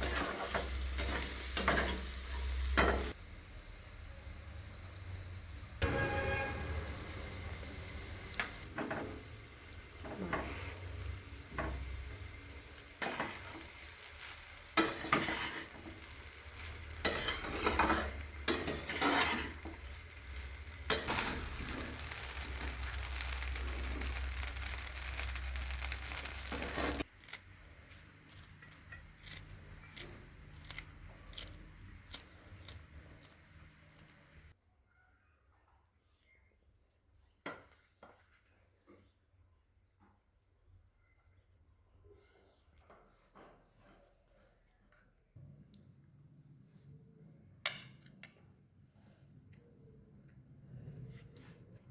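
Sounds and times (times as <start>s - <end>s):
utensil scraping a pan: 0.0s - 3.2s, 13.0s - 34.1s
rice sizzling in a pan: 0.0s - 34.6s.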